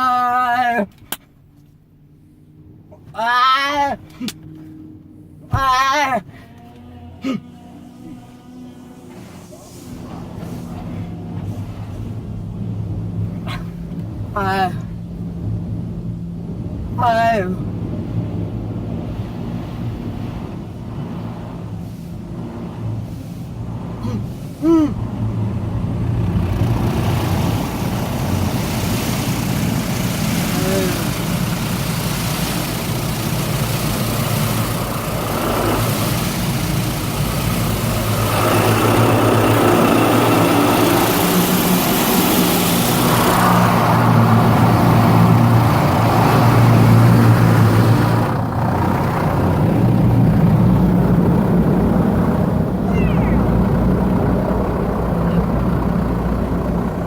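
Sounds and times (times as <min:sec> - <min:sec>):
car engine idling: 0:00.0 - 0:57.0
machinery humming: 0:04.8 - 0:57.0
car wash spray jets hissing: 0:07.6 - 0:57.0
water spray hissing: 0:26.8 - 0:48.3
short high voice-like cry: 0:52.8 - 0:53.6.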